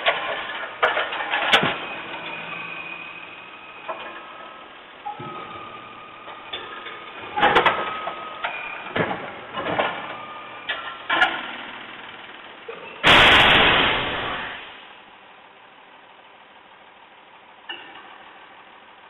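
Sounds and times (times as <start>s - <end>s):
loud rushing noise: 13.0s - 14.9s.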